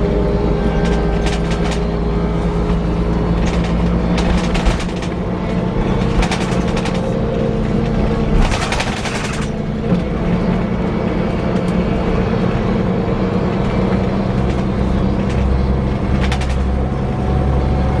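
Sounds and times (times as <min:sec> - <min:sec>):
coach diesel engine whirring: 0:00.0 - 0:18.0
rapid rattle: 0:03.3 - 0:09.8.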